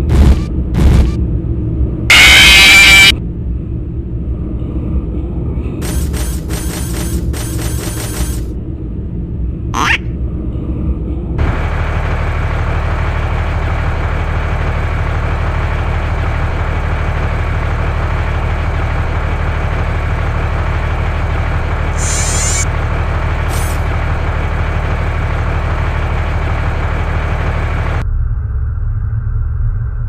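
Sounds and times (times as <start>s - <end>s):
loud low rumble: 0.0s - 5.8s, 8.5s - 30.0s
constant low hum: 0.0s - 30.0s
short high hisses: 22.0s - 22.6s.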